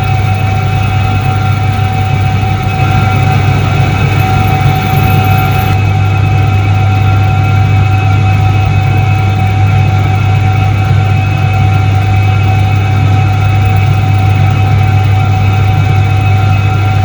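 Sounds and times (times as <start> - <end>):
washing machine humming: 0.0 - 7.9.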